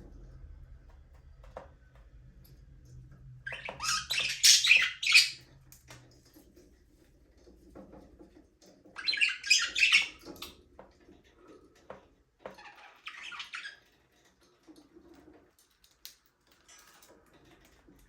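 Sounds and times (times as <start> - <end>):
budgerigars chirping and chattering: 3.5 - 5.5, 9.0 - 10.5, 12.6 - 13.8.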